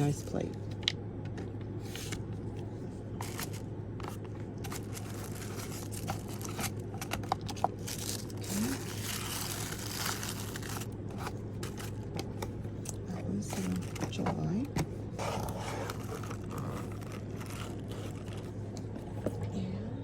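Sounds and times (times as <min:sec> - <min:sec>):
packaging crinkling: 0:03.2 - 0:14.2, 0:15.2 - 0:19.2.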